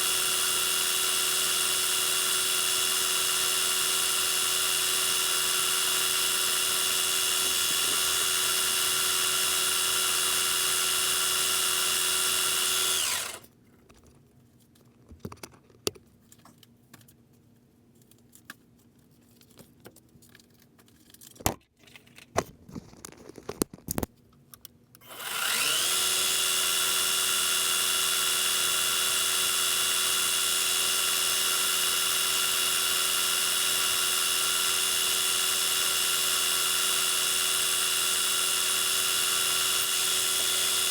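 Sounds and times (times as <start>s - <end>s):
metal lathe whining: 0.0s - 13.4s, 25.1s - 40.9s.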